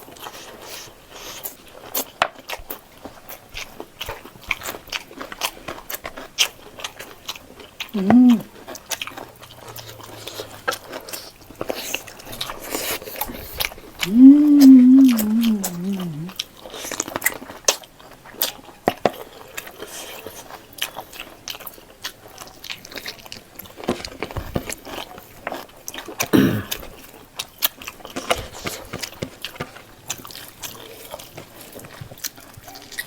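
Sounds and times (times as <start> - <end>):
wet chewing smacks: 0.1 - 33.0
person humming mm: 8.0 - 8.6, 14.0 - 16.4, 26.4 - 26.8.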